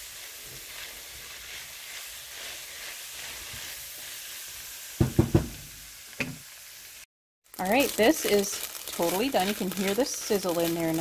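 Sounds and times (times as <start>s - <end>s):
spatula stirring in a pan: 0.0s - 5.0s, 9.0s - 11.0s
food sizzling in a frying pan: 0.0s - 11.0s
sharp knocks: 5.0s - 6.4s.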